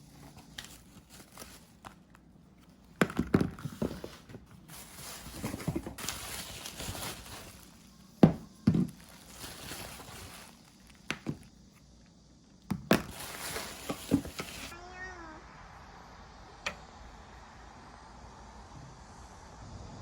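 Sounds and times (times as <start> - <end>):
rustling: 0.0 - 11.5, 13.1 - 14.7
objects knocking and thudding: 2.9 - 7.5, 8.2 - 10.2, 11.1 - 11.5, 12.7 - 14.7.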